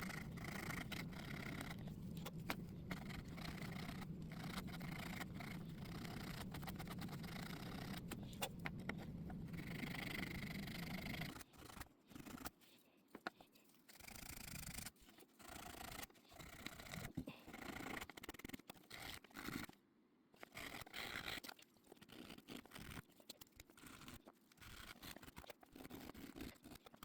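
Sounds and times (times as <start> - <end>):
steady low hum: 0.0 - 11.3.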